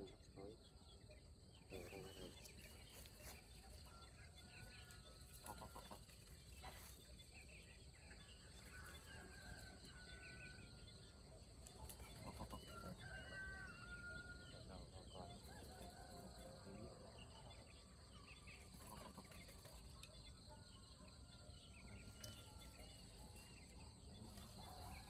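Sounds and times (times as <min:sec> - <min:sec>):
rapid clucking bird calls: 0:00.0 - 0:10.2, 0:11.1 - 0:23.4
distant drawn-out bird calls: 0:09.4 - 0:16.1.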